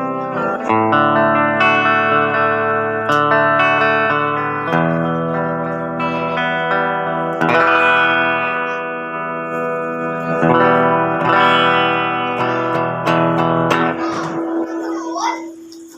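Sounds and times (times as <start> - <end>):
electric guitar strumming chords: 0.0 - 15.9.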